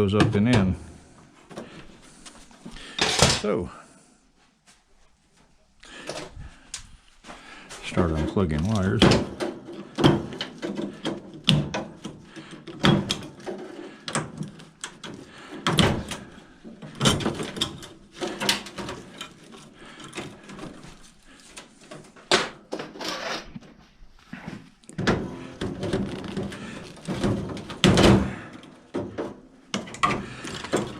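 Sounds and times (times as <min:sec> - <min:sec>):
hands rattling metal casing: 0:07.8 - 0:23.0, 0:25.0 - 0:30.9.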